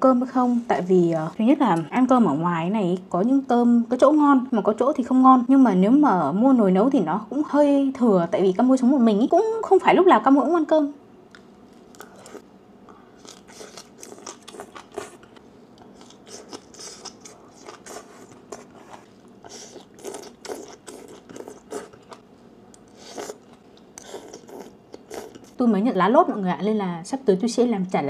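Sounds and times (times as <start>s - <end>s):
crunching and chewing vegetables: 11.3s - 25.6s.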